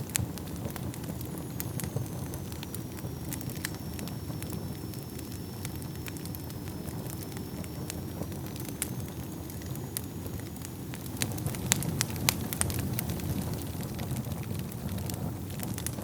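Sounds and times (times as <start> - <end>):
wood fire crackling and popping: 0.0 - 16.0
faint high whistle: 1.2 - 10.9.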